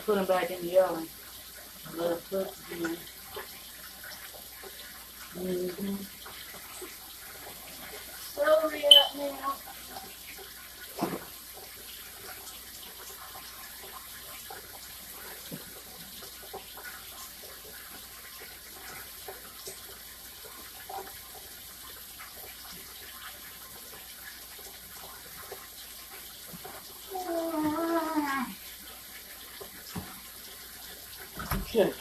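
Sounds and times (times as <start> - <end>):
tap running into sink: 29.6 - 30.3, 31.2 - 32.0
faint knocks and clicks in sink: 31.3 - 32.0.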